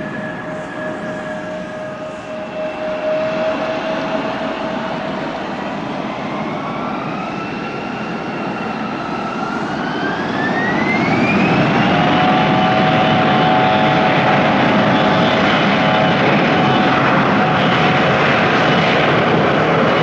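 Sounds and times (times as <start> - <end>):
jet engines spooling up: 0.0 - 20.0.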